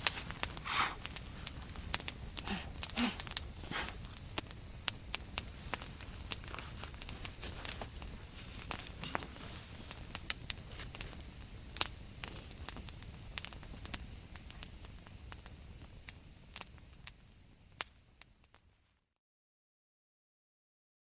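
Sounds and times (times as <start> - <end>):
campfire crackling and popping: 0.0 - 18.7
low steady fire rumble: 0.0 - 19.0.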